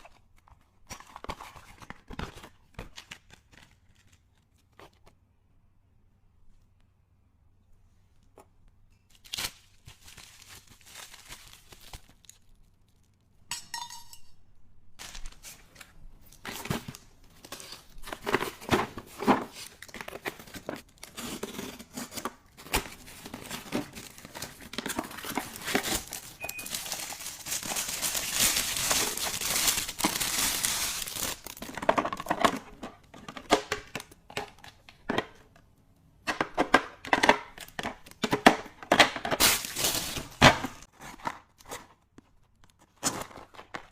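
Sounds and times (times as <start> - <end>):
packaging crinkling and tearing: 0.0 - 5.2, 9.1 - 13.3, 15.0 - 34.8, 39.0 - 43.9.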